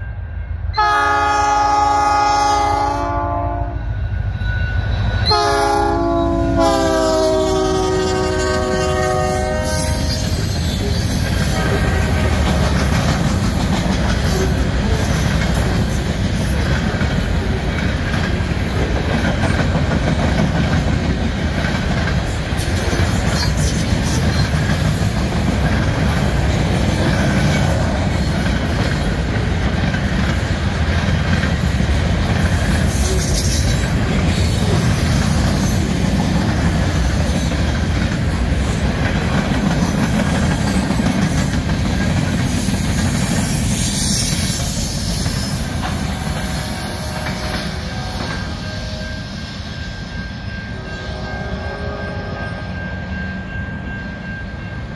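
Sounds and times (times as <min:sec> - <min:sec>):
locomotive air horn blasts: 0:00.7 - 0:03.9, 0:05.3 - 0:10.4, 0:11.4 - 0:12.6, 0:45.6 - 0:49.4, 0:50.8 - 0:53.0
freight cars rumbling on rails: 0:04.8 - 0:50.8.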